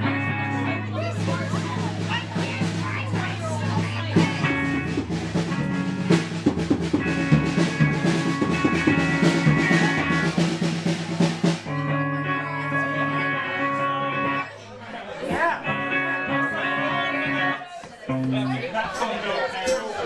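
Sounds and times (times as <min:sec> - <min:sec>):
electric guitar and bass: 0:00.0 - 0:01.9, 0:02.9 - 0:14.6, 0:15.6 - 0:18.6
drum kit pounding: 0:00.0 - 0:14.4.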